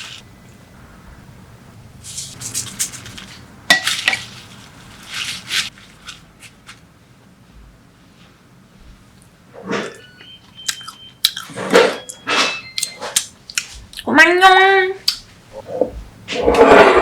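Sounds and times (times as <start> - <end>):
rustling and scraping in a bowl: 2.0 - 6.9, 15.5 - 17.0.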